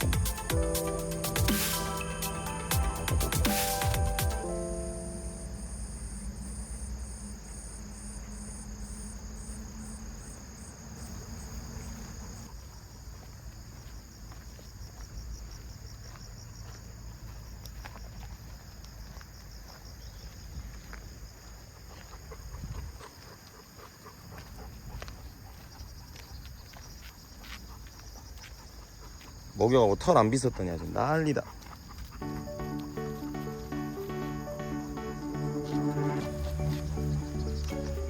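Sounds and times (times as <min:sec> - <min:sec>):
insects chirping in pulses: 0:00.0 - 0:38.0.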